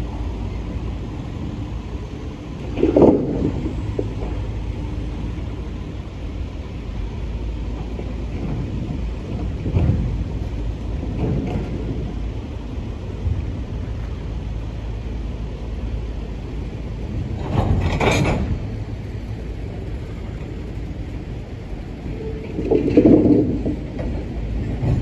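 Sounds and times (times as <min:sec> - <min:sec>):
train wheels rumbling on rail: 0:00.0 - 0:25.0
clanks and thumps: 0:17.4 - 0:18.8.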